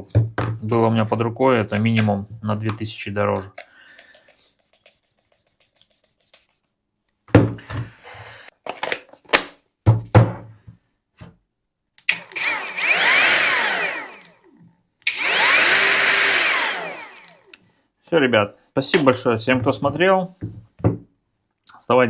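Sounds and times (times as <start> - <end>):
angle grinder whine: 12.1 - 14.4, 15.1 - 17.5.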